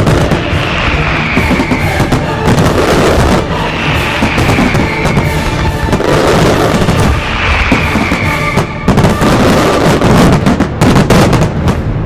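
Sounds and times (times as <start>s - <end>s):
rumble of firework bangs: 0.0s - 12.0s
sharp firework cracks: 0.0s - 12.0s
whistling shells falling whistle: 0.8s - 2.2s, 3.7s - 5.5s, 7.3s - 8.8s.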